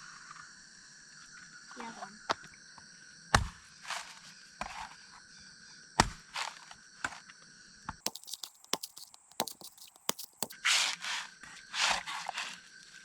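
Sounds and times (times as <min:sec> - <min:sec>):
insect chorus: 0:00.0 - 0:13.0
crunches: 0:08.1 - 0:10.6
sharp clicks: 0:08.1 - 0:10.6.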